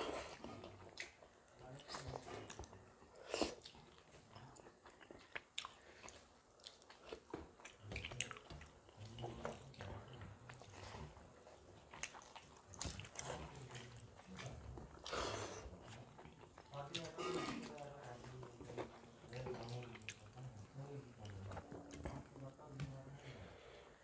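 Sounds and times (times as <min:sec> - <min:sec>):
chewing and mouth sounds: 0:00.0 - 0:23.0.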